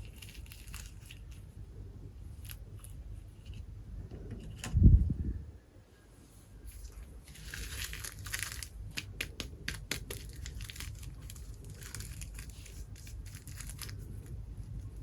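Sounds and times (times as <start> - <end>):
plastic packaging crinkling: 0.0 - 1.4, 6.8 - 15.0.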